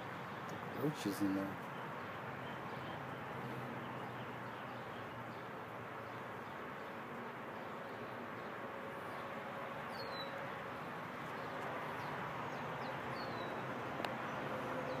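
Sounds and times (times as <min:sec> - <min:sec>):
outdoor background noise: 0:00.0 - 0:15.0
small birds chirping: 0:00.2 - 0:07.0, 0:09.9 - 0:10.4, 0:11.2 - 0:15.0.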